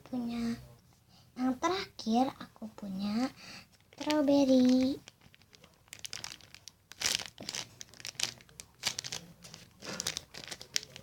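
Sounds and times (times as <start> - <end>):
squishy toy crinkling: 3.7 - 11.0.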